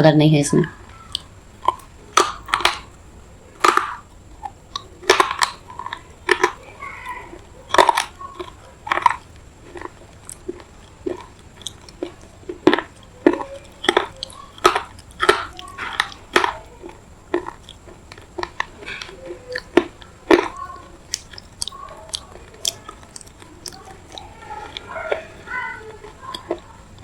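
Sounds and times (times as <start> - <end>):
chewing and crunching clay: 0.6 - 27.0.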